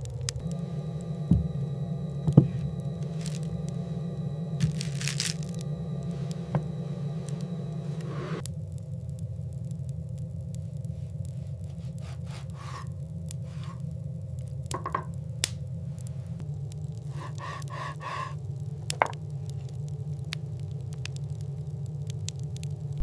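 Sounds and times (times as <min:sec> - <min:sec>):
low wind rumble: 0:00.0 - 0:11.7
soft crunches: 0:02.6 - 0:03.8, 0:04.6 - 0:06.4.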